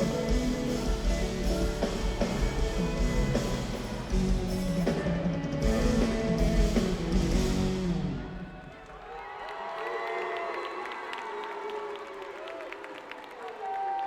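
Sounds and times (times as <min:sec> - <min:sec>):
marching drum beat: 0:00.0 - 0:08.6.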